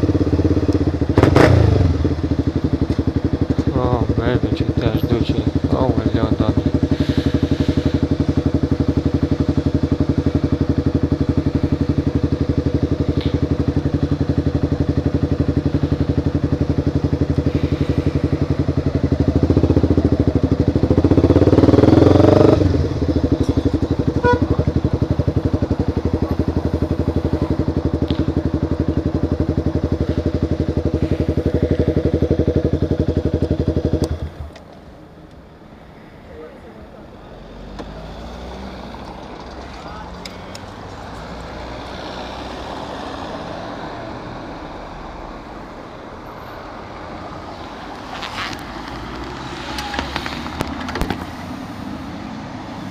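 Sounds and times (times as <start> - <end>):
motorcycle engine idling: 0.0 - 37.2.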